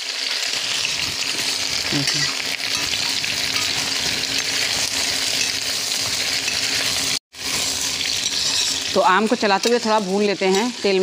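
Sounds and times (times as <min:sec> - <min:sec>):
mango slices sizzling in oil: 0:00.0 - 0:11.0.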